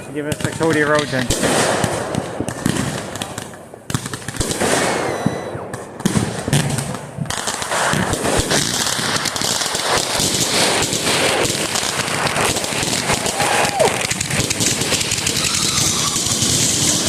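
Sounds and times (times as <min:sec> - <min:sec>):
firework bangs: 0:00.0 - 0:17.0
rapid firework crackling: 0:00.0 - 0:17.0
rising firework whistle: 0:04.5 - 0:05.8, 0:13.0 - 0:17.0.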